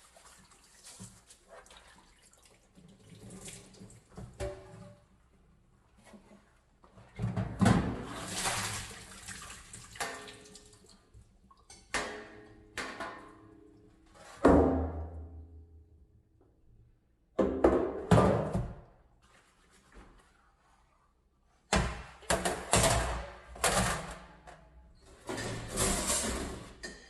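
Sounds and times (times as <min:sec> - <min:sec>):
water splashing and pouring: 0:00.0 - 0:04.2, 0:08.0 - 0:11.1.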